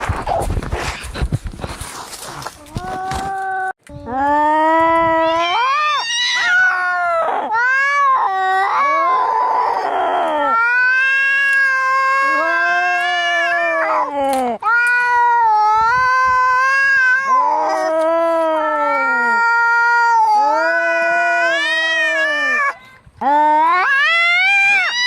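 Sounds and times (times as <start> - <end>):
cats yowling: 5.1 - 14.1, 14.7 - 22.8, 23.6 - 25.0.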